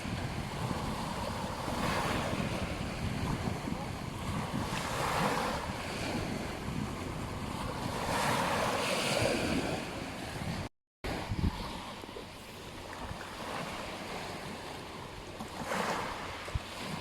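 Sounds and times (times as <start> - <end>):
sea waves washing onto beach: 0.0 - 17.0
wind rumbling on microphone: 0.0 - 17.0.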